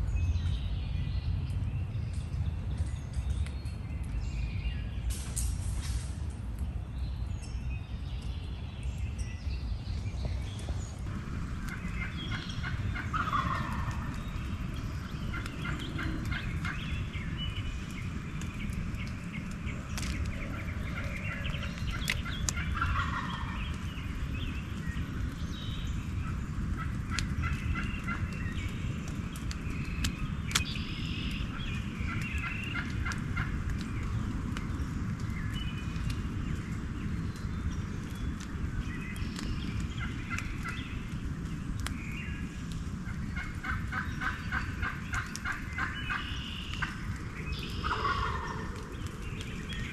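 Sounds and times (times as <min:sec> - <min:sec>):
steady low rumble: 0:00.0 - 0:49.9
turkeys gobbling: 0:11.7 - 0:14.1, 0:20.9 - 0:23.6, 0:43.4 - 0:47.0, 0:47.8 - 0:48.9.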